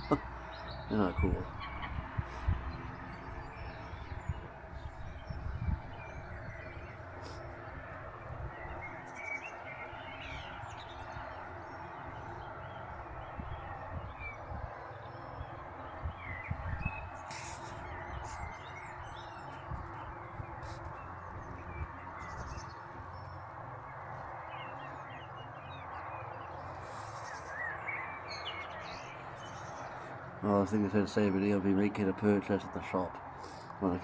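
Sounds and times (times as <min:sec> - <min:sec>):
birds chirping: 0:00.0 - 0:34.0
sharp rustle: 0:17.3 - 0:17.8.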